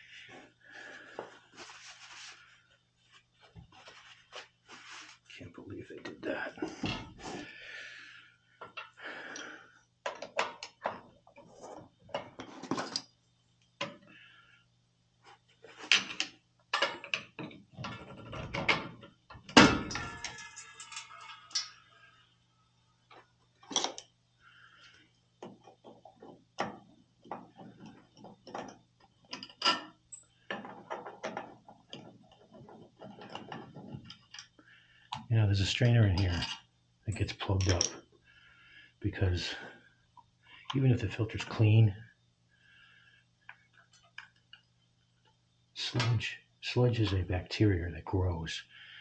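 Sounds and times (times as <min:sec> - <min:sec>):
metal parts clinking and knocking: 0:15.9 - 0:22.0, 0:23.1 - 0:24.1, 0:25.6 - 0:34.6
metal tools clinking: 0:19.8 - 0:21.9.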